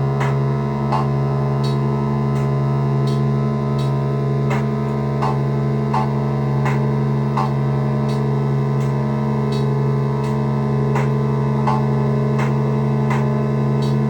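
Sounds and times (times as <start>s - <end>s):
synthesizer low drone: 0.0s - 14.0s.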